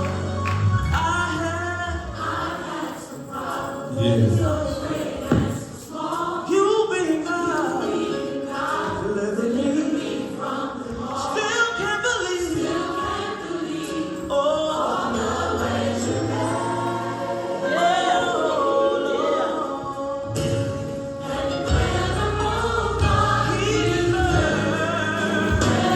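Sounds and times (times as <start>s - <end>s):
choir singing gospel: 0.0s - 25.9s.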